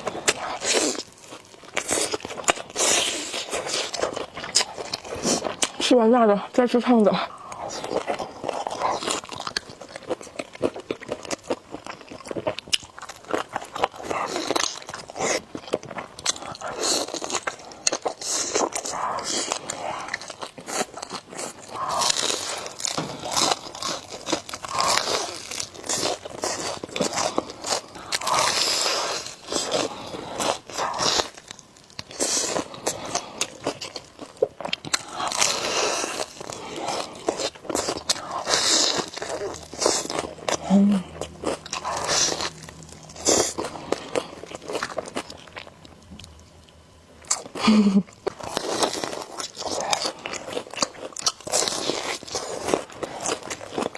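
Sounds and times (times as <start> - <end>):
wet chewing and mouth smacks: 0.0 - 5.9
chewing: 0.0 - 53.9.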